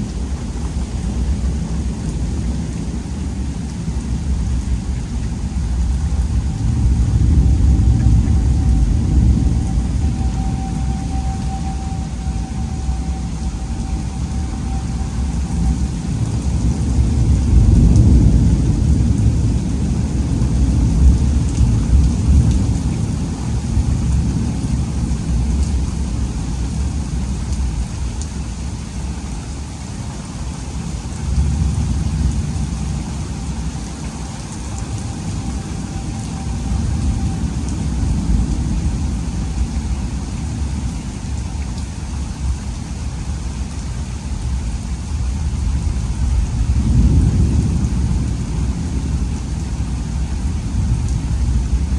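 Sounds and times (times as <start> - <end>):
heavy rain: 0.0 - 51.9
thunder rolling: 5.3 - 27.8, 31.2 - 41.4, 45.1 - 51.9.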